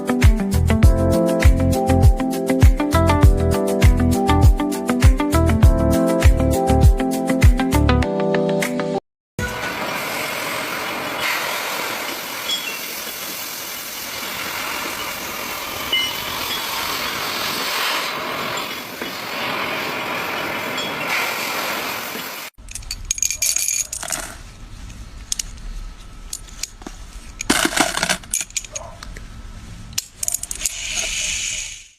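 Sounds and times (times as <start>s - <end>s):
metallic clicks and clinks: 22.6s - 24.4s, 27.4s - 29.0s, 30.0s - 31.1s.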